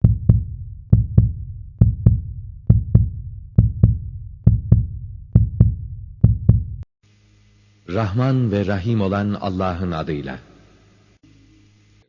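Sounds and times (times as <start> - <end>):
heartbeat thumps: 0.0 - 6.9.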